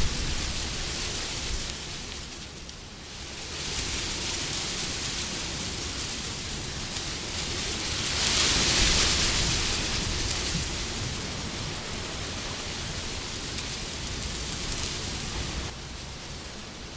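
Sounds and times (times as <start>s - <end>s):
wind blowing in gusts: 0.0s - 16.9s.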